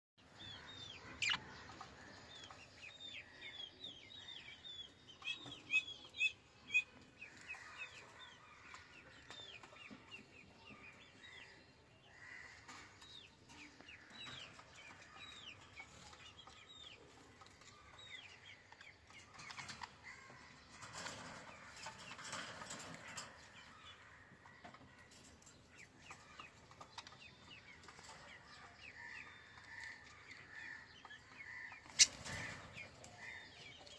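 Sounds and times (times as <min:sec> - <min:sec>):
budgerigars chirping: 0:00.7 - 0:01.4.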